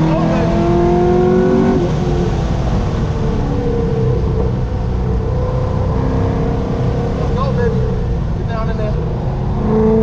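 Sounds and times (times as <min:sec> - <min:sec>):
sports car engine running hard: 0:00.0 - 0:10.0.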